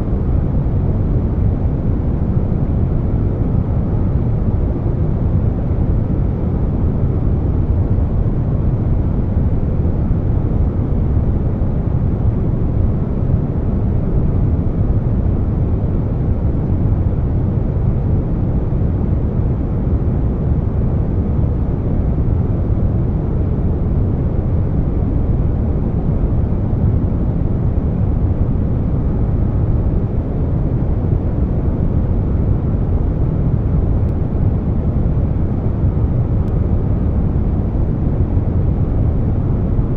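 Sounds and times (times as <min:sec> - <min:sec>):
air conditioner running: 0:00.0 - 0:39.9
brown noise: 0:00.0 - 0:39.9.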